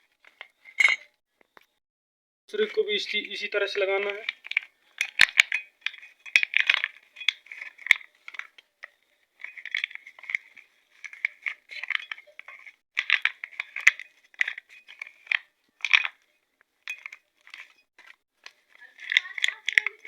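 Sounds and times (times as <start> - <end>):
small metal parts clicking: 4.0 - 20.0
plastic film crinkling: 16.8 - 20.0.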